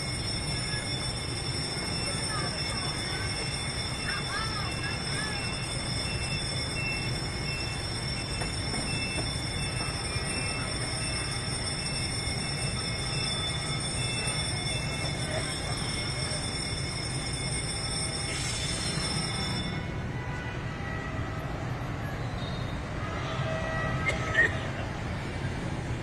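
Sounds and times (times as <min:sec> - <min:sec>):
high-pitched wheel squeal: 0:00.0 - 0:20.0
train rumbling on rails: 0:00.0 - 0:26.0.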